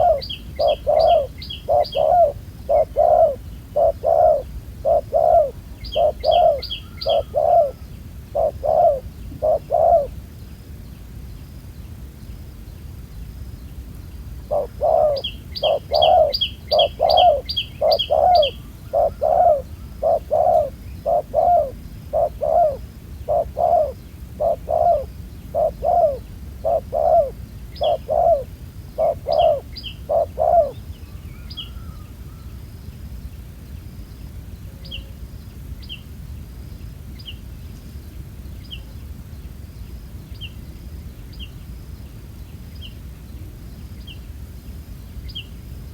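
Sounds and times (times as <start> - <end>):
small bird chirping: 0.0 - 10.1, 14.5 - 32.0
dove cooing: 0.0 - 10.2, 14.4 - 30.8.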